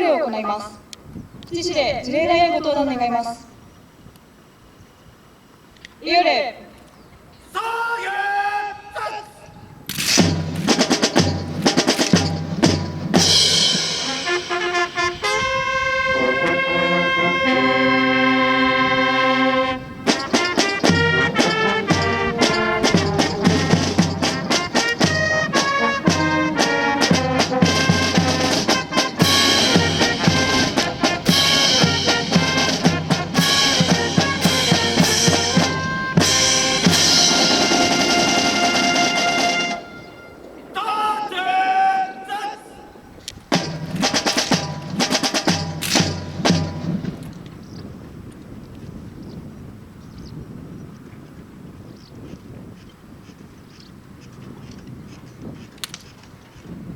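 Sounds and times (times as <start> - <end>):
military brass band playing: 9.9 - 42.4, 43.5 - 47.2
drum strokes: 10.0 - 15.4, 20.0 - 39.9, 43.5 - 47.2.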